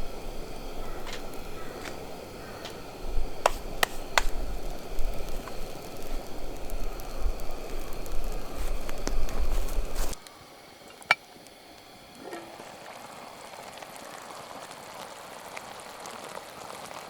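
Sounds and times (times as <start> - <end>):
fire popping sharply: 0.0 - 10.2
steady hiss: 0.0 - 16.9
campfire crackling: 0.0 - 17.0.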